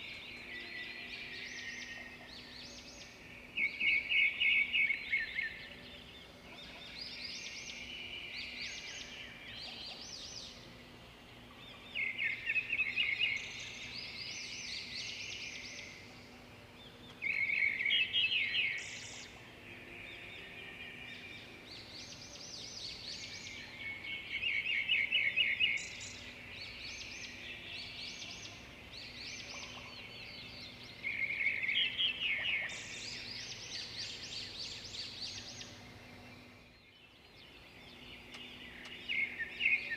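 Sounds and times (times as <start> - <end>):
birds chirping softly: 0.0 - 39.9
faint low hum: 0.0 - 39.9.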